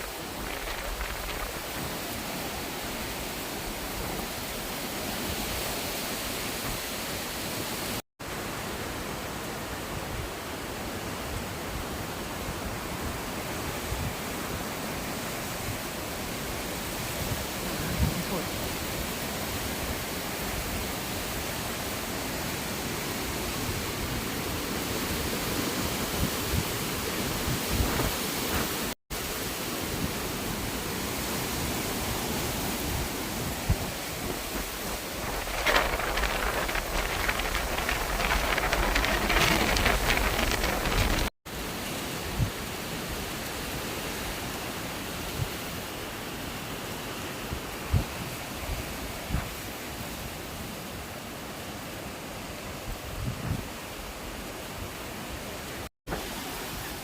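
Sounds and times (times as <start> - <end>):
storm wind on microphone: 0.0 - 6.8, 32.4 - 41.3, 52.8 - 54.0.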